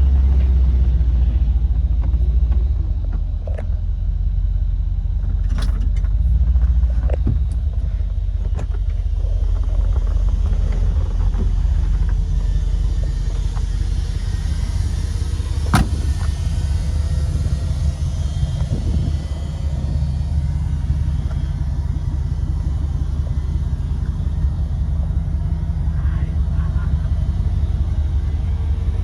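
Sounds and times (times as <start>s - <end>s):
engine and exhaust rumble: 0.0s - 29.0s
sharp clicks or knocks: 15.6s - 16.4s.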